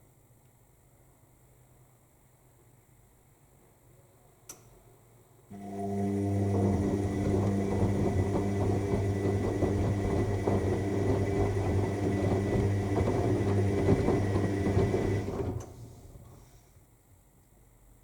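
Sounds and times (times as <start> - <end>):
washing machine motor hum: 5.5 - 16.4.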